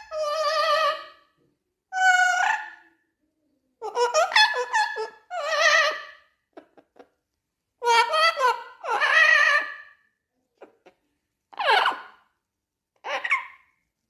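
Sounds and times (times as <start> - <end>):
parrot singing with vibrato: 0.0 - 1.3, 1.9 - 2.9, 3.8 - 6.4, 7.8 - 10.1, 11.5 - 12.4, 13.0 - 13.8.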